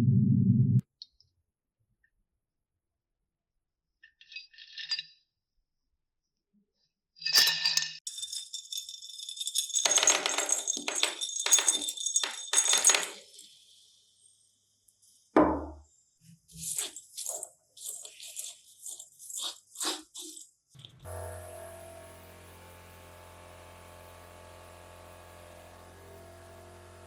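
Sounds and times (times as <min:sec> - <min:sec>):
metal clinking and jingling: 0:07.3 - 0:13.7
dull thump: 0:15.4 - 0:15.8.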